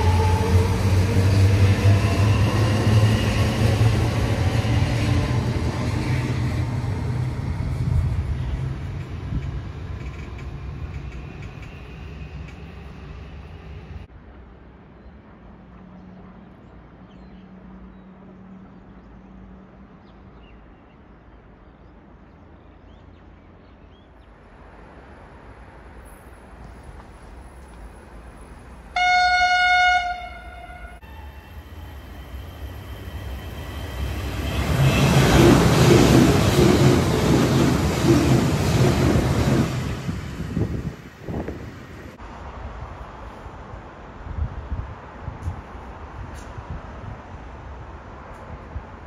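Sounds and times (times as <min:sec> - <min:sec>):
train horn blast: 0:00.0 - 0:01.2, 0:28.9 - 0:31.6
train rumble and rail noise: 0:00.0 - 0:49.0.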